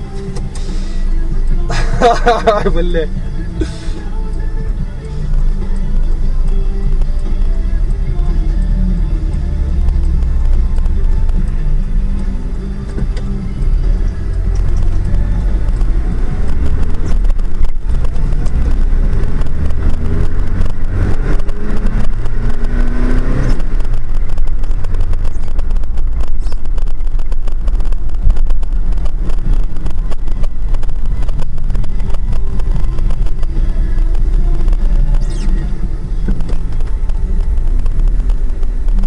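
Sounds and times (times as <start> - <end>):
car engine and road rumble: 0.0 - 39.0
small clicks: 4.1 - 39.0
engine note rising in pitch: 13.8 - 25.6.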